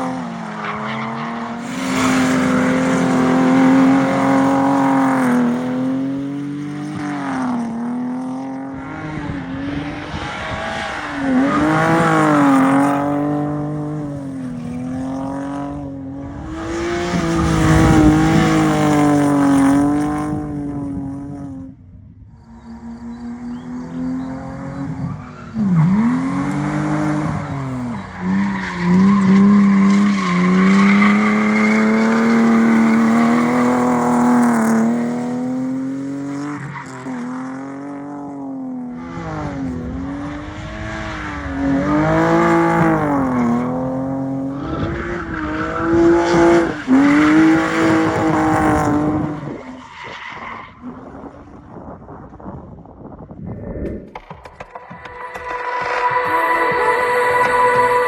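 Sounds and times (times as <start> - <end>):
car engine revving: 0.0 - 21.6, 22.5 - 49.6
tyre squeal: 22.4 - 34.5, 54.7 - 58.0.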